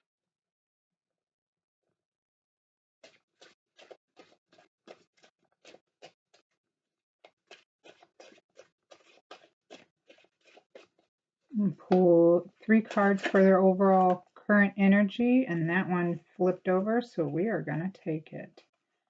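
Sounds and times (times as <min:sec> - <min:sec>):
cards being shuffled: 0:03.0 - 0:06.2, 0:07.2 - 0:11.0.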